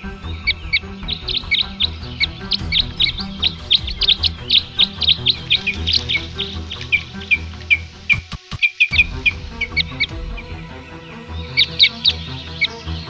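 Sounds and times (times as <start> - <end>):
birds chirping: 0.0 - 13.0
low background music: 0.0 - 13.0.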